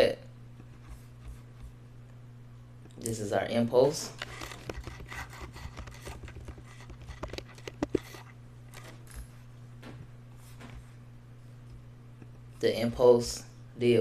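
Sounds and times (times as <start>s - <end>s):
steady low hum: 0.0s - 14.0s
keyboard and mouse clicks: 4.3s - 8.3s.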